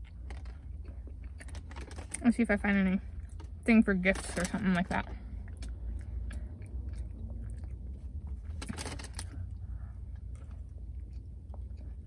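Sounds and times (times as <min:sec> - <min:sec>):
person chewing pastry: 0:00.0 - 0:02.1, 0:03.1 - 0:03.6, 0:05.1 - 0:12.0.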